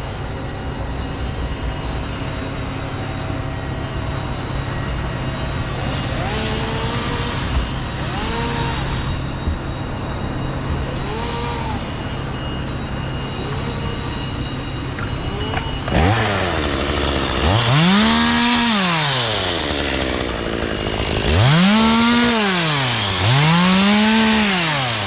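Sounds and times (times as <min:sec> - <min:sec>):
motor running: 0:05.7 - 0:25.0.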